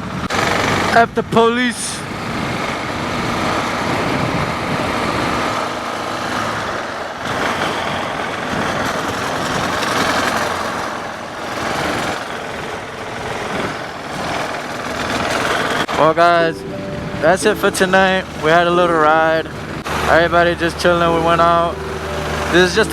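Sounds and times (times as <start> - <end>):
wind and road noise: 0.0 - 22.9
motorcycle engine running: 6.4 - 15.9.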